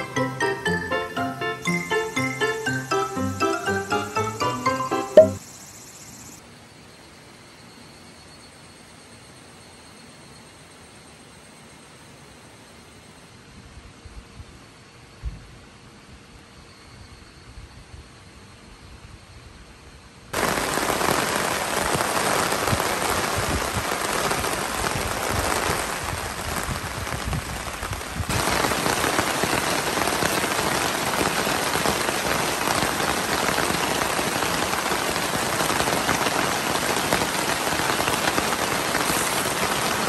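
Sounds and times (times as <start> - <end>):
heavy rain on a tarp: 20.3 - 40.0.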